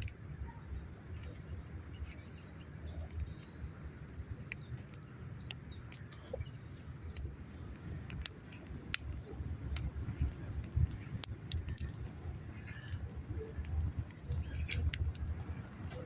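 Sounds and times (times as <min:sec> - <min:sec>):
steady low rumble: 0:00.0 - 0:16.0
sharp clicks: 0:02.1 - 0:03.5, 0:04.4 - 0:06.2, 0:07.1 - 0:16.0
faint bird chirps: 0:09.0 - 0:16.0.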